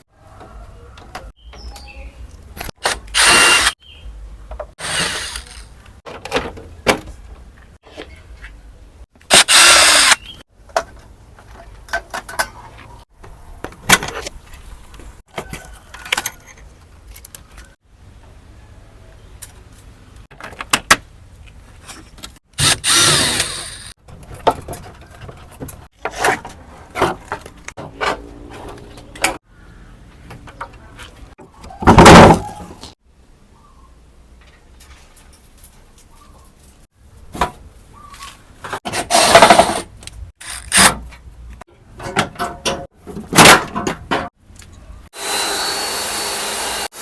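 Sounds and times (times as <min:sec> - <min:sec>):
power tool bursts: 0:03.1 - 0:03.8, 0:04.8 - 0:05.7, 0:09.3 - 0:10.3, 0:22.6 - 0:23.9, 0:45.2 - 0:47.0.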